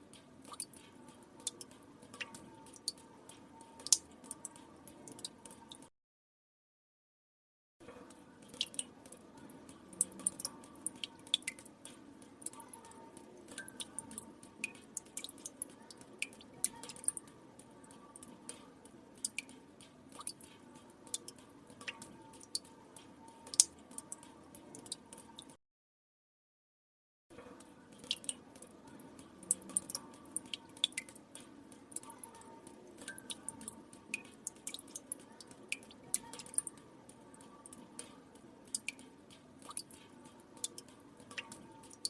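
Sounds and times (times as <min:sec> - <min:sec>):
water drops plinking into water: 0:08.0 - 0:18.6, 0:27.5 - 0:42.0.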